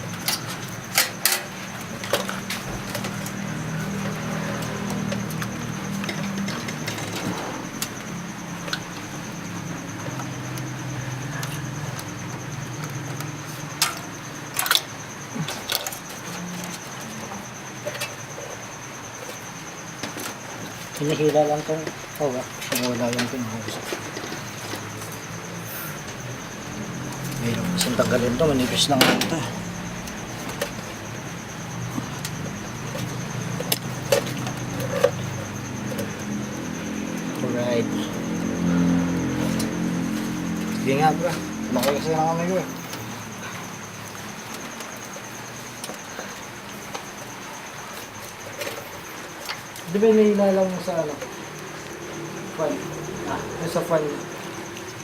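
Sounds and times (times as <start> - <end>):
computer parts clicking and knocking: 27.2 - 31.0.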